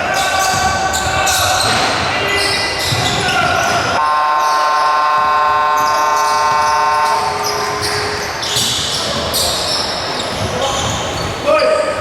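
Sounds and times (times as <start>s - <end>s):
arena crowd noise: 0.0s - 12.0s
arena horn: 4.0s - 8.4s.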